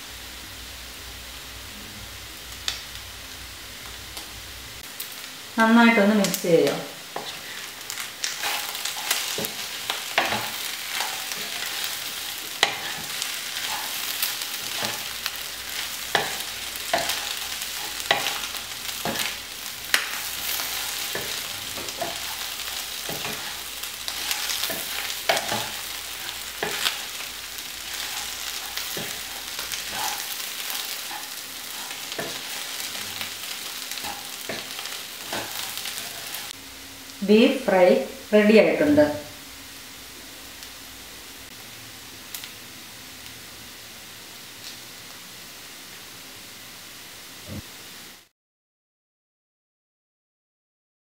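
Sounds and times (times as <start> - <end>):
meat sizzling in oil: 0.0 - 38.8, 39.4 - 48.3
wooden spatula scraping a pan: 7.1 - 19.4, 20.0 - 36.5.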